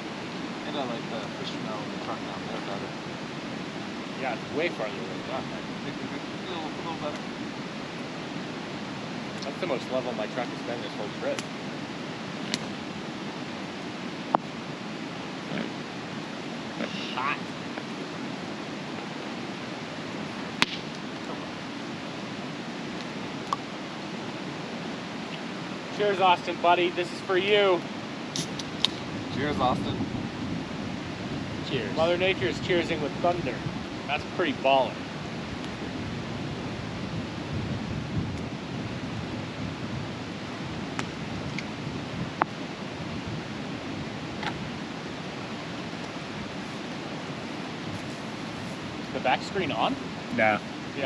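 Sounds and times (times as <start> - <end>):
steady outdoor hiss: 0.0 - 51.0
sharp loud pop: 20.6 - 20.9.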